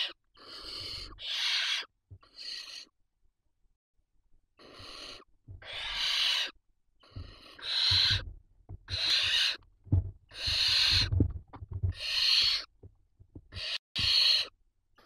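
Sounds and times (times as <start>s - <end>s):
owl chicks rasping hissing calls: 0.0s - 2.9s, 4.6s - 8.2s, 8.9s - 9.6s, 10.3s - 11.1s, 11.9s - 12.7s, 13.5s - 14.5s.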